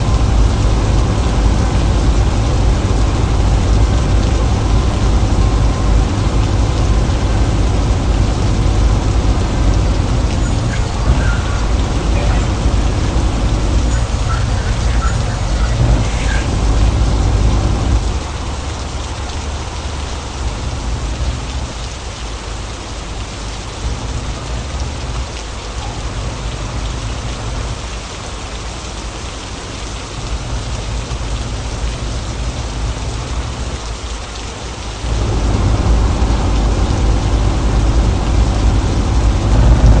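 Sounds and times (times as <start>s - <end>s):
low rumble: 0.0s - 21.9s, 35.0s - 40.0s
rain falling on a car: 0.0s - 40.0s.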